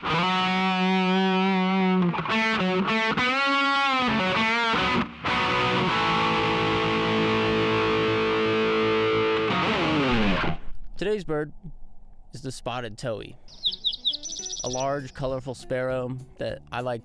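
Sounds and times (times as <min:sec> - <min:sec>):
distorted electric guitar: 0:00.0 - 0:11.0.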